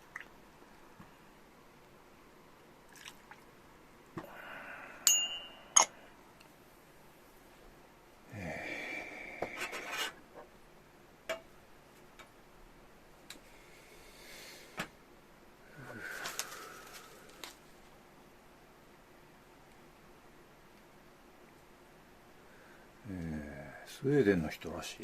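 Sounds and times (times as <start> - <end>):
tableware clinking: 5.1 - 6.0
rustling: 15.9 - 17.9.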